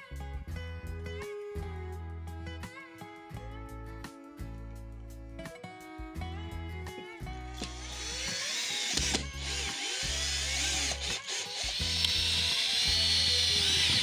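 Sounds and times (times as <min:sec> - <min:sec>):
power tool whirring on wood: 0:07.6 - 0:14.0.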